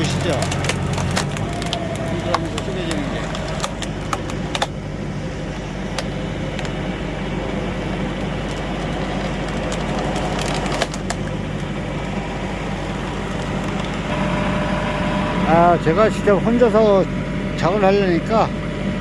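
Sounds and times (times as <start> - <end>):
wood cracking and splintering: 0.0 - 6.8, 7.4 - 14.2
tractor engine running: 0.0 - 19.0.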